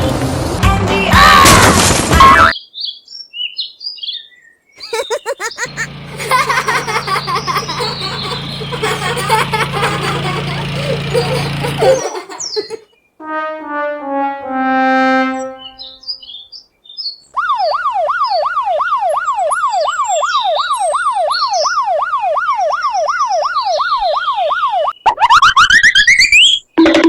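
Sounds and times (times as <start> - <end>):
fast warbling siren: 5.5 - 12.7, 17.4 - 26.6
descending comedic horn effect: 13.2 - 16.0.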